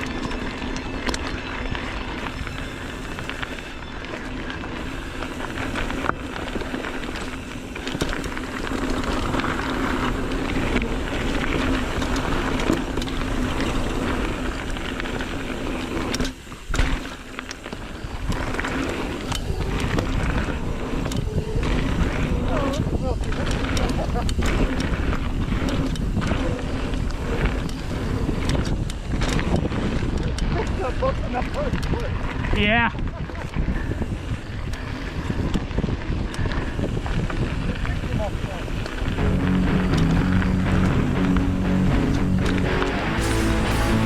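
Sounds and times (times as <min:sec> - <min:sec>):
bike knocking and rattling: 0:00.0 - 0:44.0
tyre noise on dirt: 0:00.0 - 0:44.0
wind on microphone: 0:18.0 - 0:42.7.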